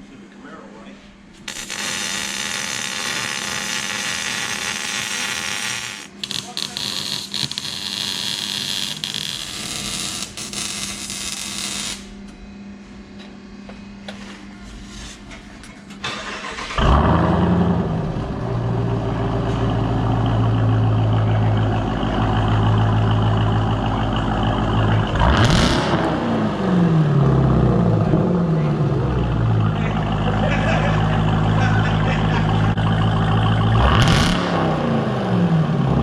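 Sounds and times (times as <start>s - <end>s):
low hum: 1.0s - 36.0s
car engine starting and idling: 16.0s - 36.0s.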